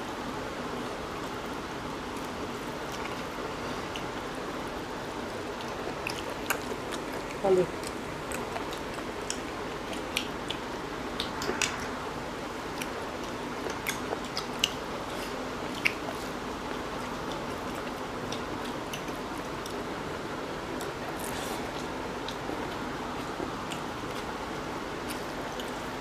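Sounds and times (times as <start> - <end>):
wet chewing and mouth clicks: 5.4 - 11.9, 12.7 - 19.8, 20.7 - 24.4, 25.0 - 25.9.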